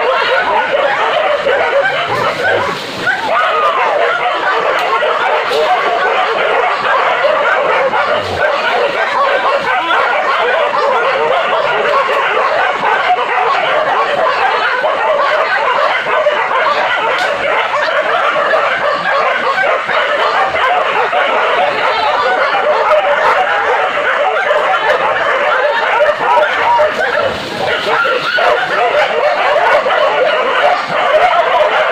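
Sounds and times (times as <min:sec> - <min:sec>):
dogs barking and yelping: 0:00.0 - 0:31.9.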